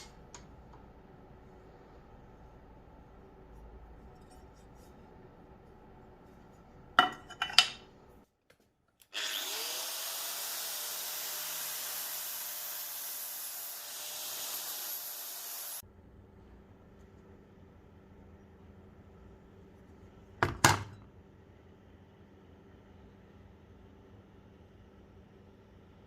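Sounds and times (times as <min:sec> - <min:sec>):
power tool whining: 0:09.1 - 0:15.8
abrasive hiss on steel: 0:10.0 - 0:15.8.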